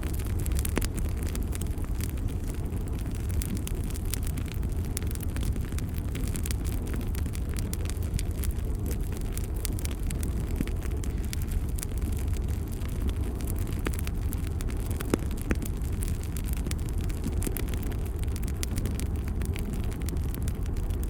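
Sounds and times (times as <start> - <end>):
fire crackling in fireplace: 0.0 - 21.0.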